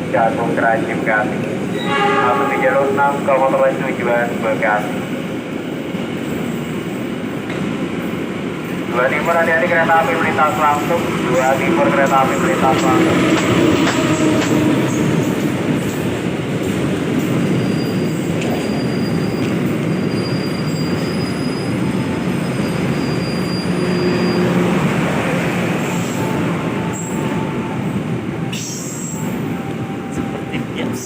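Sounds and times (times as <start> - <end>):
train wheels rumbling on rails: 0.0 - 31.0
high wheel squeal: 17.4 - 24.8.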